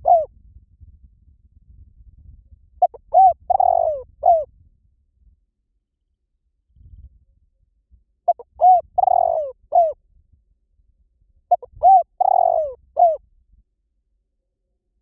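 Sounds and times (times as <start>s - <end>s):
dove cooing: 0.0s - 0.3s, 2.8s - 4.5s, 8.3s - 10.0s, 11.5s - 13.2s.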